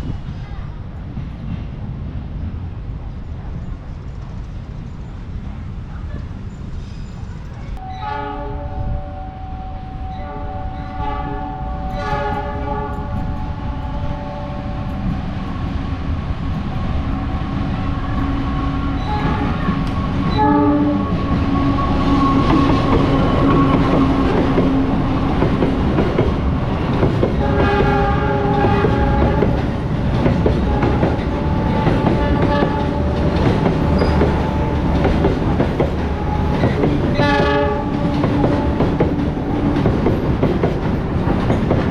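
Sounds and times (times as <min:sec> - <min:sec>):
train rumbling past: 0:00.0 - 0:41.9
train air horn blasts: 0:07.8 - 0:15.2, 0:17.8 - 0:25.0, 0:27.4 - 0:29.7, 0:30.6 - 0:34.9, 0:36.1 - 0:39.0.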